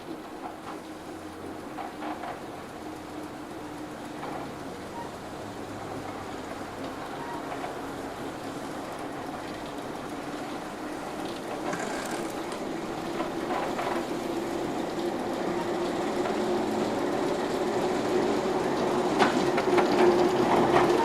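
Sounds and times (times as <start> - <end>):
diesel train engine: 0.0 - 21.0
rail noise: 0.0 - 21.0
wheel clicks over rail joints: 11.2 - 15.0.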